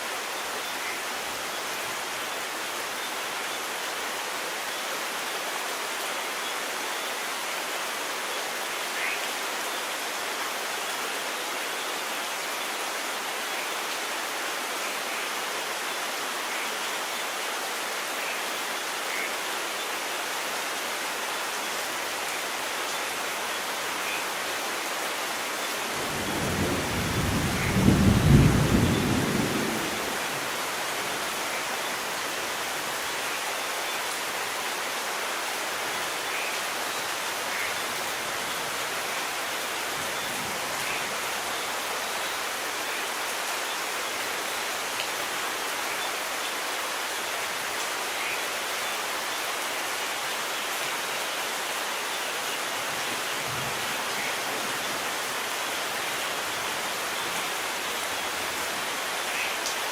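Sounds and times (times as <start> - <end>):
steady rain falling: 0.0 - 59.9
thunder rumbling: 26.0 - 30.5.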